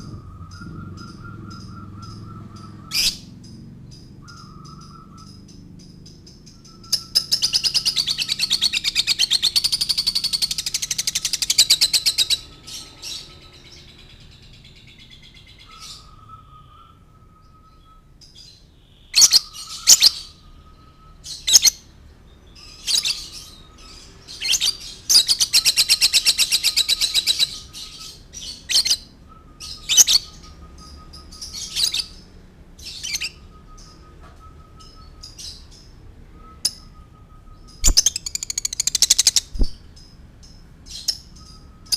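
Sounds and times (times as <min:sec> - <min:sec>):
lovebird chattering trill: 0:00.0 - 0:16.2, 0:37.6 - 0:41.9.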